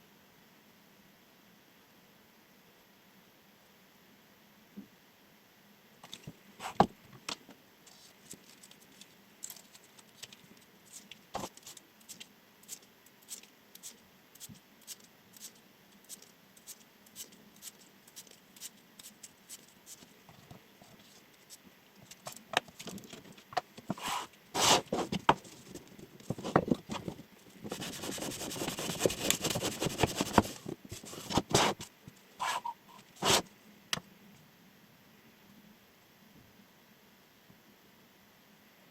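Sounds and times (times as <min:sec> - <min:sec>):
knife scraping: 0:27.6 - 0:33.4.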